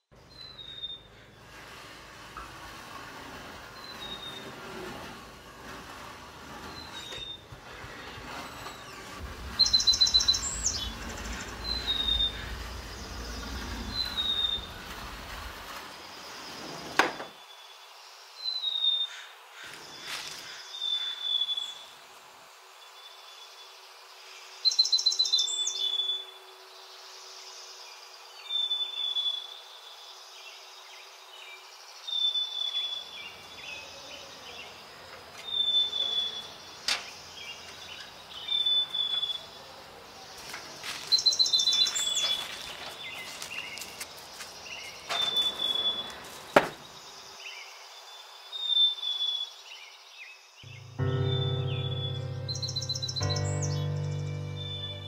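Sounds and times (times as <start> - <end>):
bird chirping and trilling: 0.2 - 1.1, 8.7 - 15.0, 50.7 - 55.0.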